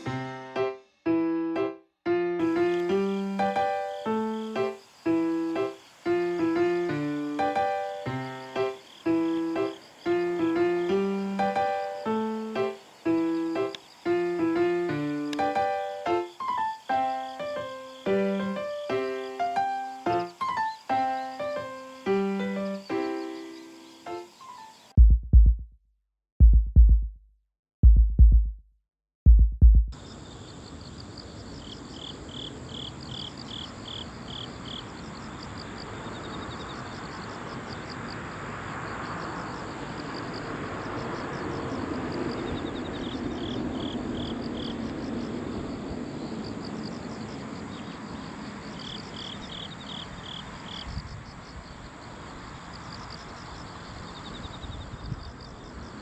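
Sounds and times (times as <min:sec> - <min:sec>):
crickets chirping: 0:02.4 - 0:25.0, 0:30.0 - 0:56.0
heavy bass drum hits: 0:25.0 - 0:25.6, 0:29.3 - 0:29.9.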